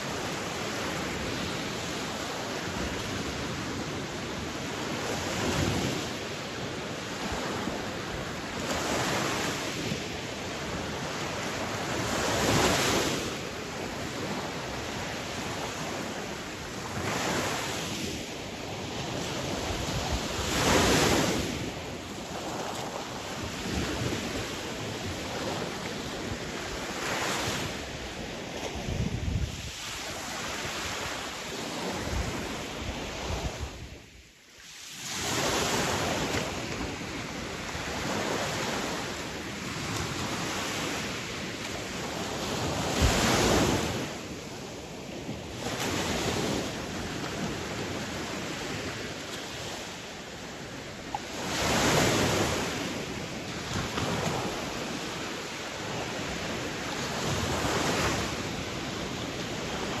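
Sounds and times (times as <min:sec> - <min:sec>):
sea waves washing onto shore: 0:00.0 - 1:00.0.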